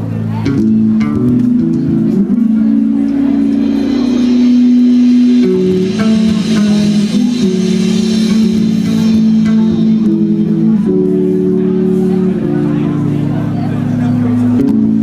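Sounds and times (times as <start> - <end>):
live band playing: 0.0 - 15.0
plucked electric bass: 0.0 - 15.0.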